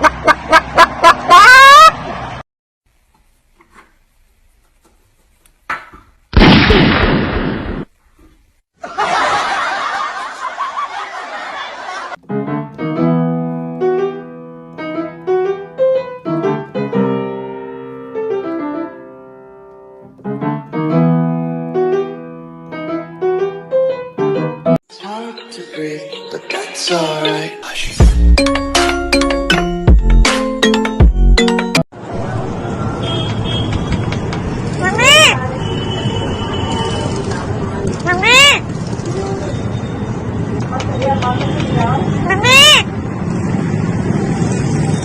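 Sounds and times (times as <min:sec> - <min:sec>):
electronic keyboard melody: 0:12.2 - 0:31.8.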